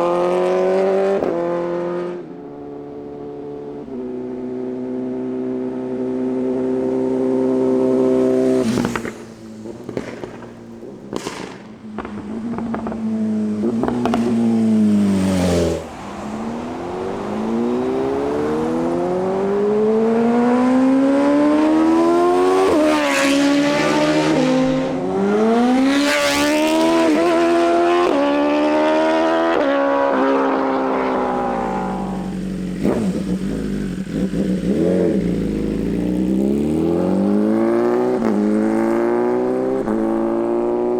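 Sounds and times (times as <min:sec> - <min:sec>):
motorcycle engine revving: 0:00.0 - 0:40.9
exhaust pops and cracks: 0:08.8 - 0:13.1.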